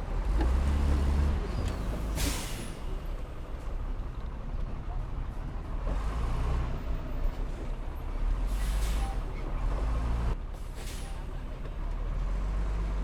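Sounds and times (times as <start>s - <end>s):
diesel machinery rumbling: 0.0s - 13.0s
air brake hiss: 2.0s - 2.9s, 8.5s - 9.2s, 10.6s - 11.2s.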